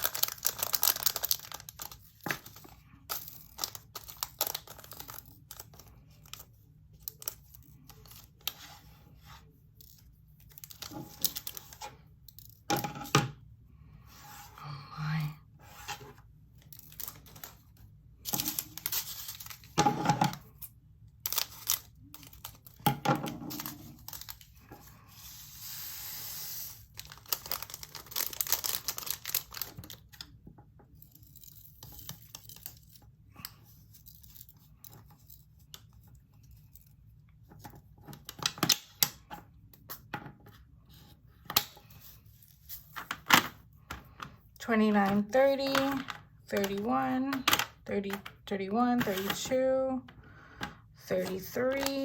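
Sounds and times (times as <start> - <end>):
plastic packets crinkling: 0.0 - 6.4, 18.2 - 19.8, 21.2 - 22.8, 23.5 - 24.7, 26.8 - 30.2.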